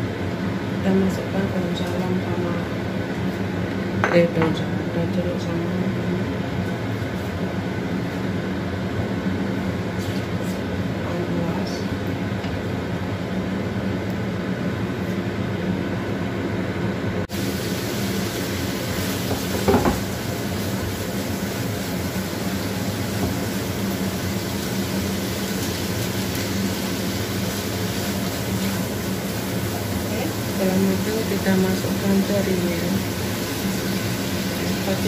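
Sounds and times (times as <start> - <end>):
paste frying in a wok: 17.3 - 35.0.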